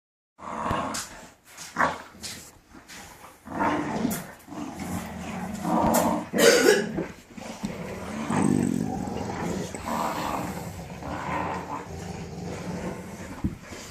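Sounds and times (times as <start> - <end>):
puppies growling and yapping: 3.2 - 13.9.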